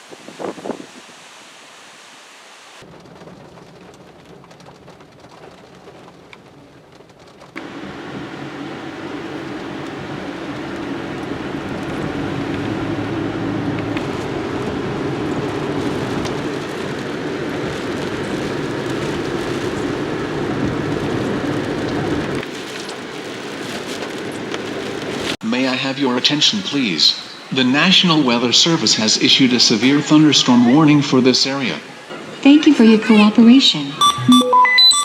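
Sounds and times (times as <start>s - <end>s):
car road and engine noise: 0.0s - 25.4s.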